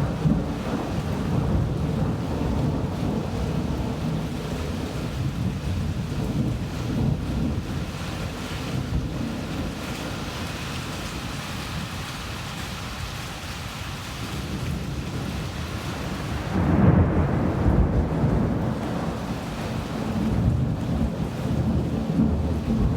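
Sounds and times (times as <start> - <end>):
rolling thunder: 0.0 - 11.9, 14.4 - 22.9
steady rain: 0.0 - 22.9.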